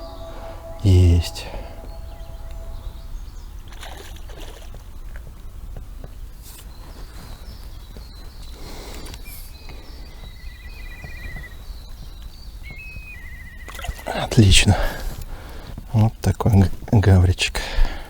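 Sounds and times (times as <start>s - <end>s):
low rumble: 0.0s - 3.9s
birds singing: 0.0s - 4.7s, 6.6s - 17.3s.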